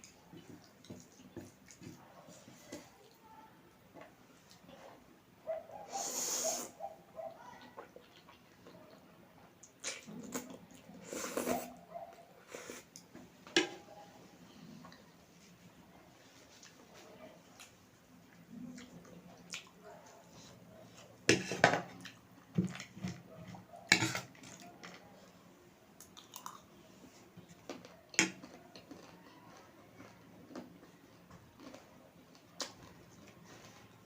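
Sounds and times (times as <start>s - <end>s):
chewing noodles: 7.6s - 9.0s, 17.6s - 19.8s, 26.0s - 34.0s.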